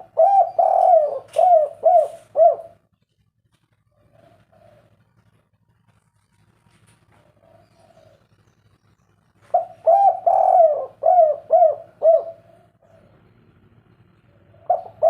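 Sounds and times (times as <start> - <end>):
dove cooing: 0.0 - 3.0, 3.8 - 5.5, 7.0 - 8.4, 9.4 - 13.6, 14.2 - 15.0.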